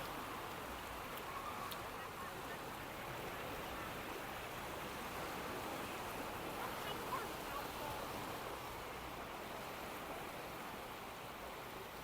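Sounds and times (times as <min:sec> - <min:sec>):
wind: 0:00.0 - 0:12.0
sea surf: 0:04.5 - 0:11.5.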